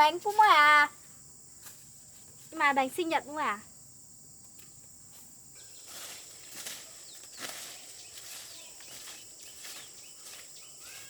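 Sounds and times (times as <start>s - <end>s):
high-pitched insect drone: 1.1s - 11.0s
rustling scuffing noises: 4.6s - 11.0s.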